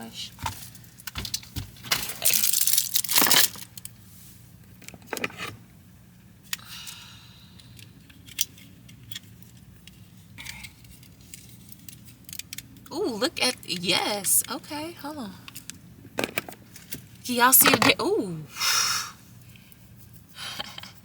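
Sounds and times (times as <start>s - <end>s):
batteries clicking and rattling: 2.2s - 3.8s
rustling and tearing: 2.2s - 3.8s.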